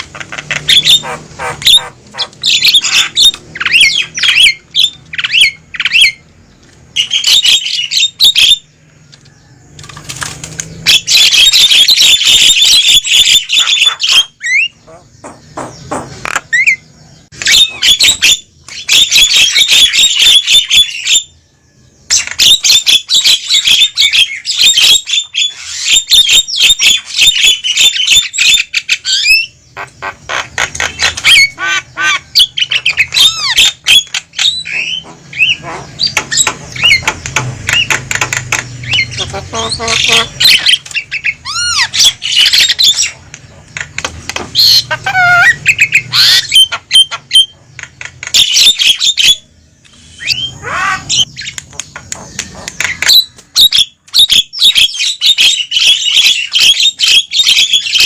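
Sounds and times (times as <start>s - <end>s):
mynas chattering: 39.0s - 42.0s
whistled bird notes: 48.4s - 51.6s.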